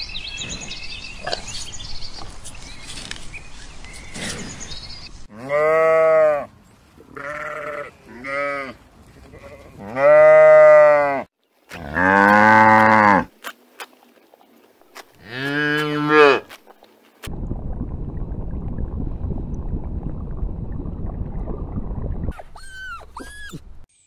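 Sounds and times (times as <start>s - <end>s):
sheep bleating: 5.3s - 6.5s, 7.1s - 13.3s.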